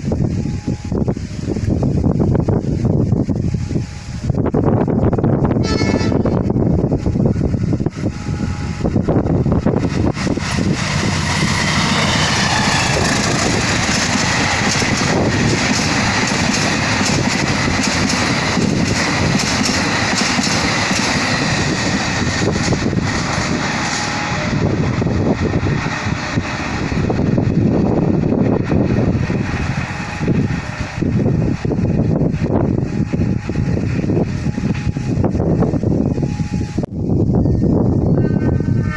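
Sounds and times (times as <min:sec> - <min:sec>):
train wheels rumbling on rail: 0:00.0 - 0:38.9
wheels clacking over track: 0:09.7 - 0:34.9.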